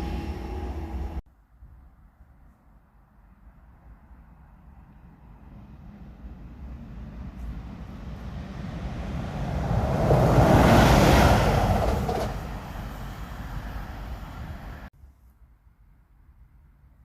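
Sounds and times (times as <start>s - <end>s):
train rumbling past: 0.0s - 1.2s, 4.6s - 14.9s.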